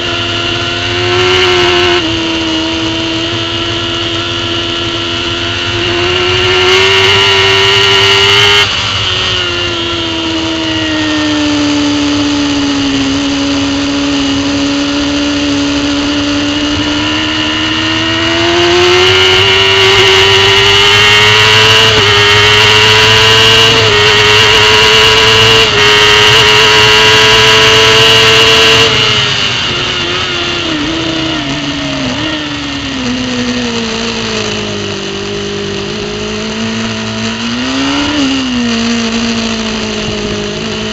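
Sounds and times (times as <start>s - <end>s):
motorcycle engine at high revs: 0.0s - 40.9s.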